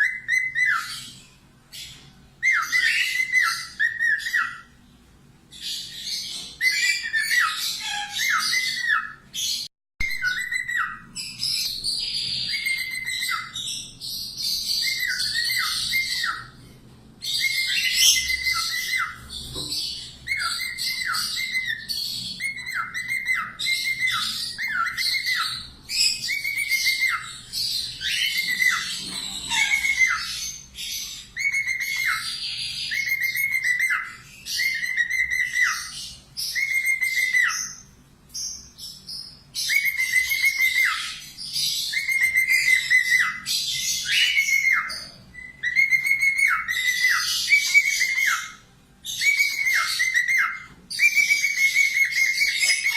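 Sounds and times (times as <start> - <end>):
parakeet chattering: 17.4 - 37.9.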